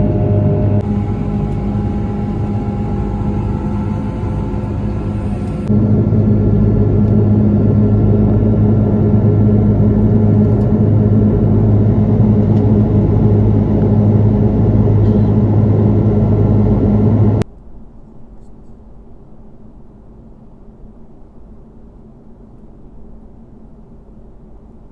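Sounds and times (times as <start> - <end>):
airliner jet engines droning: 0.0 - 17.4
muffled cabin hum: 0.0 - 17.5.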